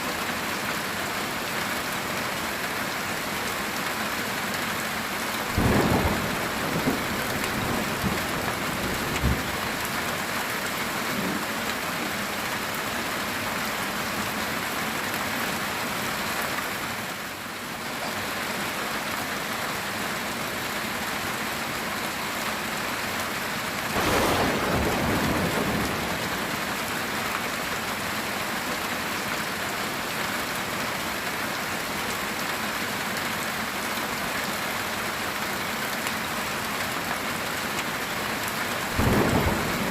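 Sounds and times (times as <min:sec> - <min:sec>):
heavy rain on a tin roof: 0:00.0 - 0:39.9
thunder cracks and rumbles: 0:05.6 - 0:09.9, 0:24.0 - 0:26.6, 0:39.0 - 0:39.9.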